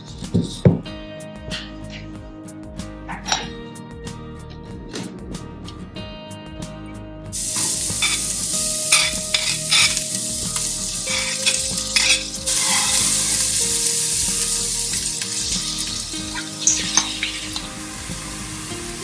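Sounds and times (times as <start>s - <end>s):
food sizzling in a pan: 7.4s - 19.0s
utensil scraping a pan: 7.4s - 19.0s.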